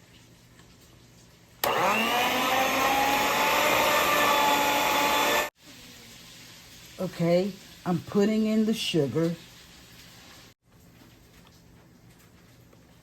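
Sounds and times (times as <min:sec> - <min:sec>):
electric mixer whining: 0:01.6 - 0:05.5.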